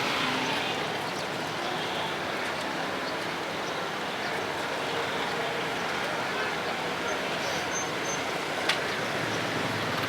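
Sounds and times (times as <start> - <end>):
passing traffic: 0.0 - 1.1, 8.2 - 10.0.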